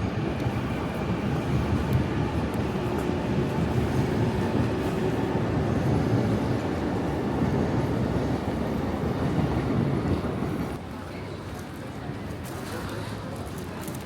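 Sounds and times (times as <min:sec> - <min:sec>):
train passing rumble: 0:00.0 - 0:10.8.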